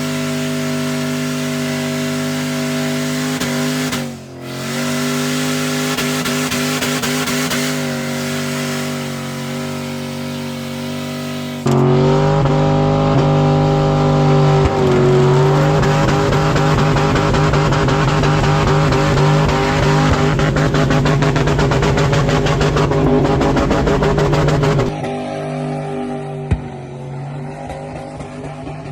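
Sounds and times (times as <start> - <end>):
engine at high revs: 0.0 - 28.9.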